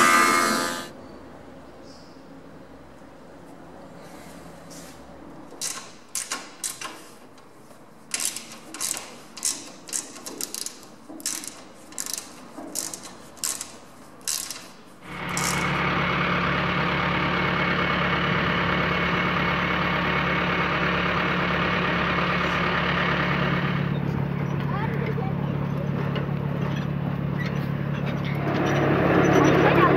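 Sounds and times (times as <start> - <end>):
tractor engine running: 0.0 - 0.9, 15.0 - 29.9
wooden slats clicking on steel frame: 8.1 - 15.6.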